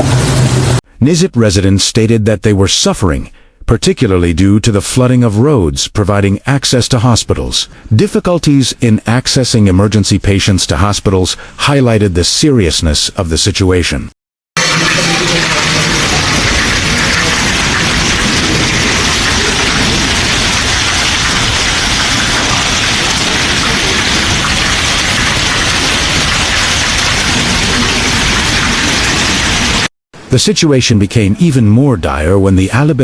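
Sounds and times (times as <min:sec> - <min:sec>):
heavy rain pouring: 0:00.0 - 0:00.8, 0:14.6 - 0:29.9.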